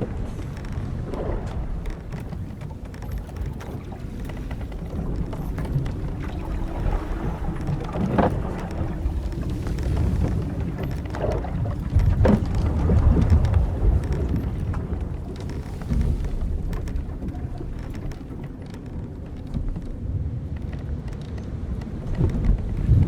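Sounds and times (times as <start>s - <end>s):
wind and waves rumble: 0.0s - 23.0s
wooden deck and ropes creaking: 0.0s - 23.0s.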